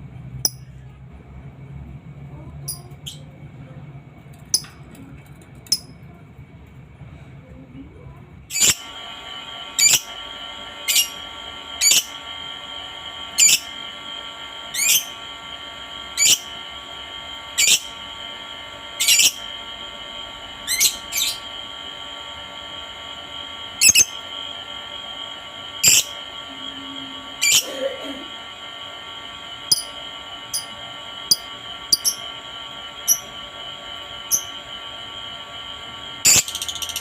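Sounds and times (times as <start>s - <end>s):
high-pitched ringing: 0.5s - 0.8s, 23.8s - 24.1s, 29.7s - 32.3s, 33.0s - 33.3s
lovebird chirping: 23.8s - 24.1s, 31.3s - 32.2s.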